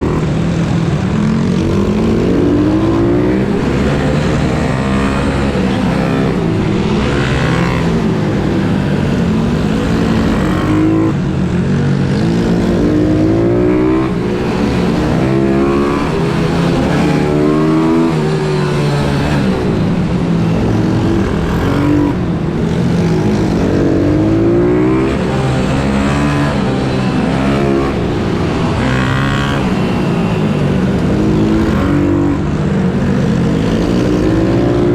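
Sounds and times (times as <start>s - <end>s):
pit bike engines revving: 0.0s - 34.9s.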